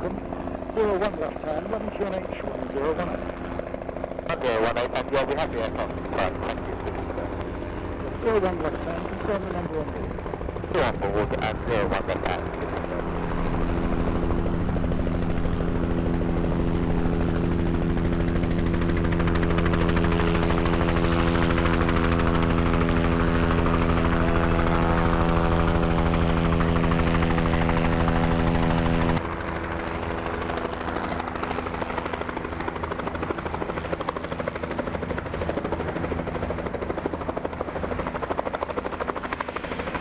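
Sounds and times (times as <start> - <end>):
helicopter rotor and engine hum: 0.0 - 40.0.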